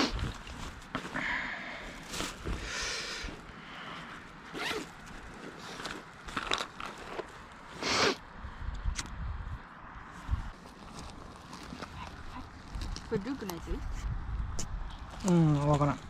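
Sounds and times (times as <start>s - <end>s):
zipper pulls and rustling: 1.8s - 8.2s, 10.5s - 14.0s.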